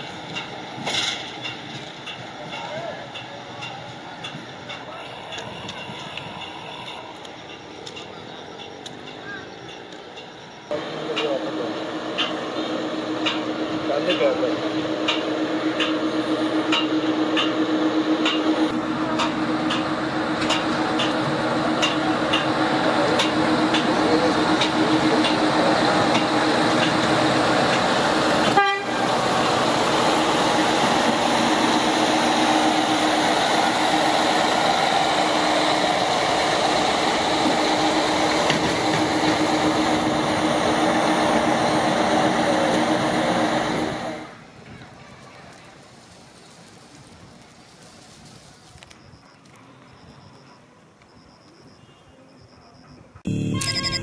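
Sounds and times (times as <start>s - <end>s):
train wheels rumbling on track: 0.0s - 51.6s
low steady tone: 53.3s - 54.0s.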